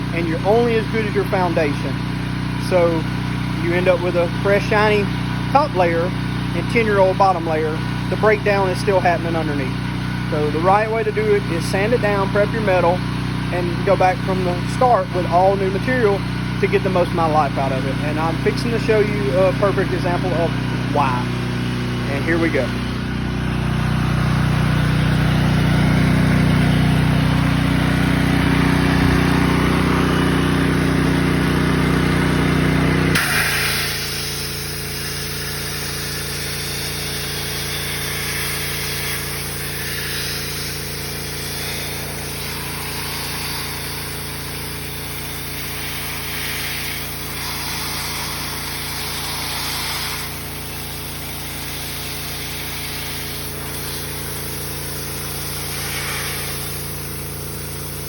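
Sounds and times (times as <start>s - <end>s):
motor humming: 0.0s - 58.0s
hissing air blasts: 33.1s - 58.0s.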